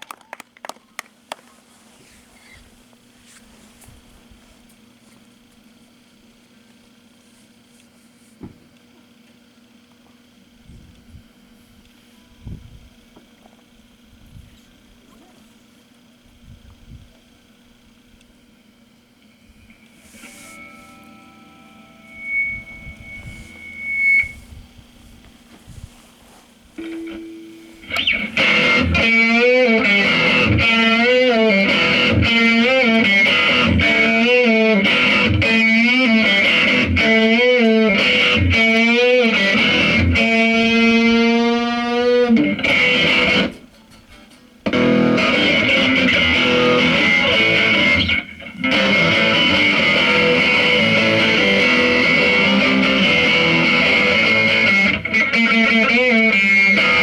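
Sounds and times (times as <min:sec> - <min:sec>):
distorted electric guitar: 0:19.5 - 0:24.9, 0:26.8 - 0:57.0.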